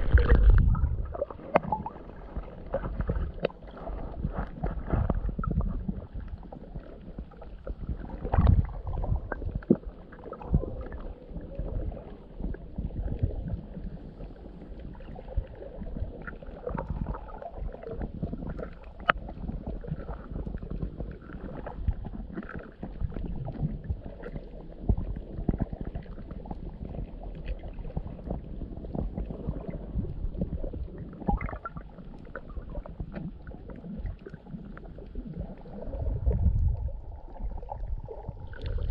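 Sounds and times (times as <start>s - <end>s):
low underwater thumps and knocks: 0.0s - 2.0s, 7.8s - 10.8s
muffled underwater water sloshing: 0.0s - 38.9s.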